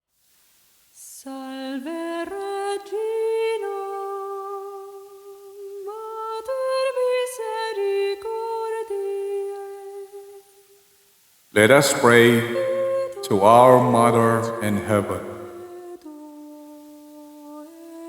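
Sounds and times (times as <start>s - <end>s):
person humming a slow melody: 11.6s - 18.0s.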